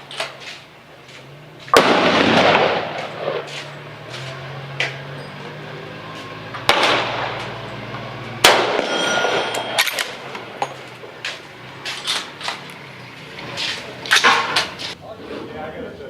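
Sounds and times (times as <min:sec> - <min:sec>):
rifle shots: 0:01.7 - 0:04.0, 0:06.6 - 0:11.2
metallic ring of steel target: 0:04.9 - 0:11.1.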